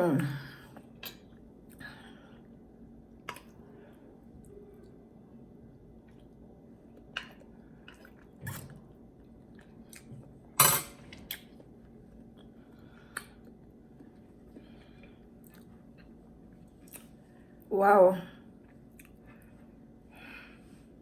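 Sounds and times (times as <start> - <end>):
quiet chewing: 3.2 - 10.4, 11.1 - 17.6, 18.6 - 19.8.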